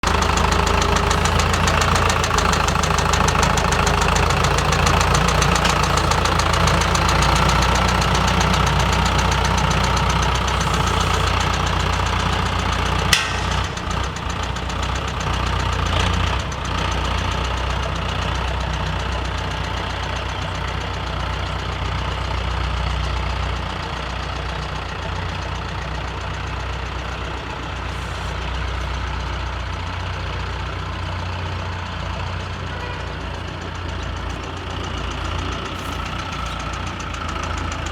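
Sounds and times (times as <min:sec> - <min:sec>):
tractor diesel engine running: 0:00.0 - 0:37.9
sharp click: 0:13.1 - 0:13.8.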